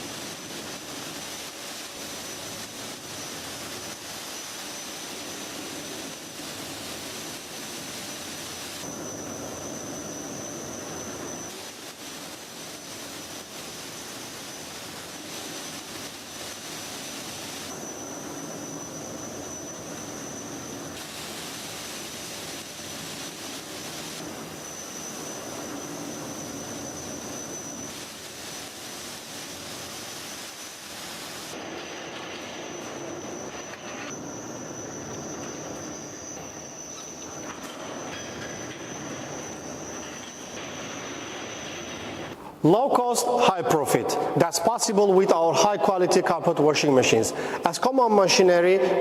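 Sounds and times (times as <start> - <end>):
washing machine whirring: 0.0 - 43.5
high-pitched whine: 0.0 - 49.0.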